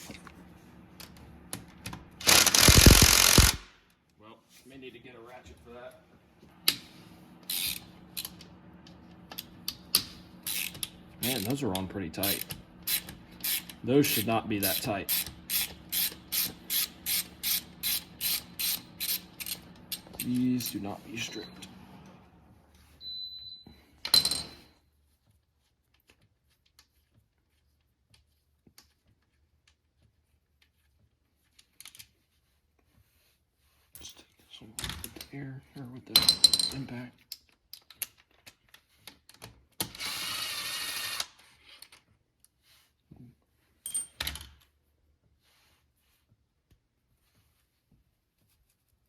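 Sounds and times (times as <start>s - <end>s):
air impact wrench: 2.2s - 3.8s, 7.5s - 7.9s, 10.4s - 11.6s, 12.2s - 20.8s, 39.8s - 41.4s.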